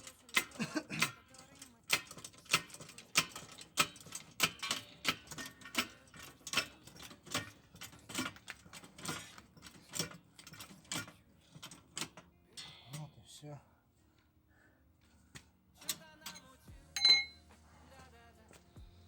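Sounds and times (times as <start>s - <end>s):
floor jack clicking: 0.0s - 12.2s.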